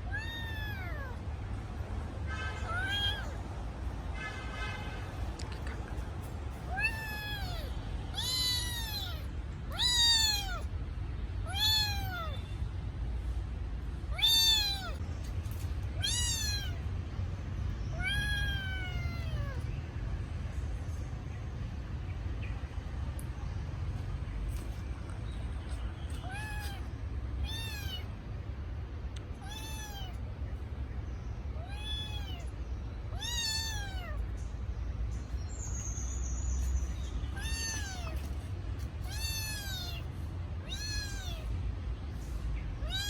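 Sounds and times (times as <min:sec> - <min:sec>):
kitten meowing: 0:00.0 - 0:01.2, 0:02.7 - 0:03.4, 0:06.7 - 0:10.7, 0:11.5 - 0:12.4, 0:14.1 - 0:15.0, 0:16.0 - 0:16.9, 0:17.9 - 0:19.6, 0:26.1 - 0:28.1, 0:29.4 - 0:30.2, 0:31.6 - 0:32.5, 0:33.1 - 0:34.2, 0:37.3 - 0:38.3, 0:39.0 - 0:41.5.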